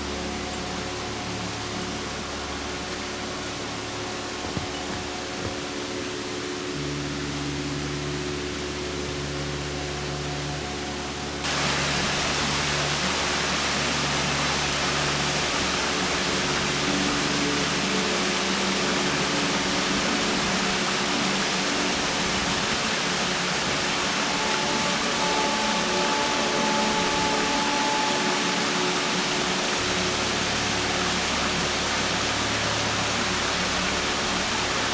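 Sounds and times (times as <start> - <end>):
waterfall rushing: 11.4 - 34.9.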